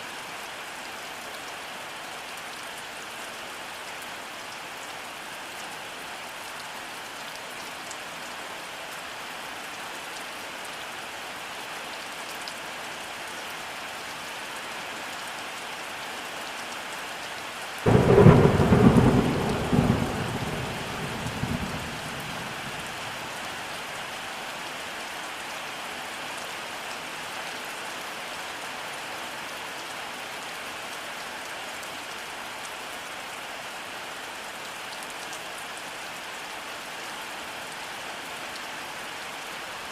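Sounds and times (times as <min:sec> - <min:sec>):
steady rainfall: 0:00.0 - 0:39.9
thunderclap rumbling: 0:17.9 - 0:22.9.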